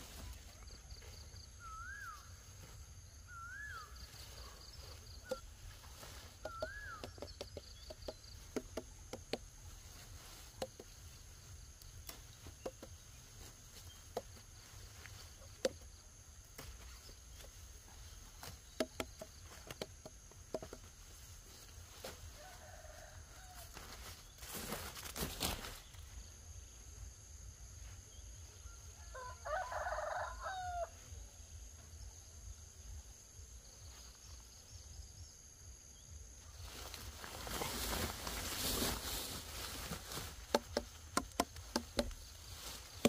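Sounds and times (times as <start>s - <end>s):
bird calls: 3.1s - 8.5s.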